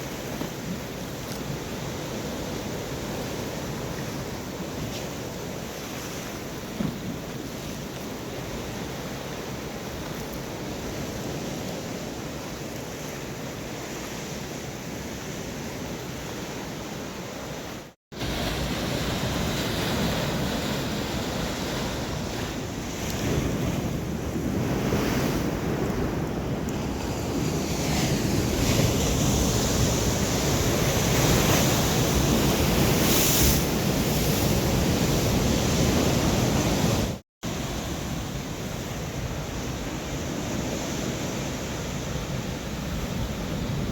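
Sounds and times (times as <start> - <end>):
surf breaking on shore: 18.1 - 43.9.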